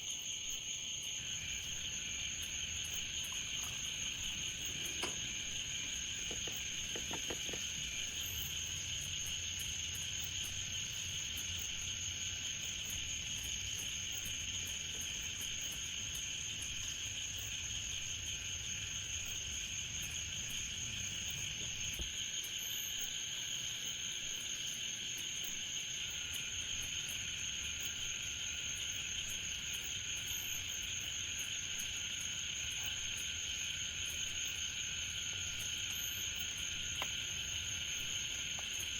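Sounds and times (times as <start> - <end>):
night insects trilling: 0.0 - 38.9
faint ticks: 1.8 - 8.3, 28.8 - 38.9.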